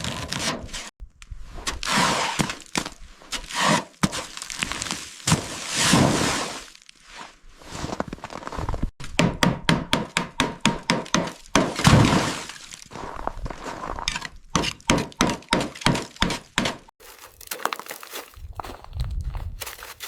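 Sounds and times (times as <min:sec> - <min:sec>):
brittle material cracking and breaking: 0:17.0 - 0:20.0
loud crunching: 0:17.0 - 0:20.0.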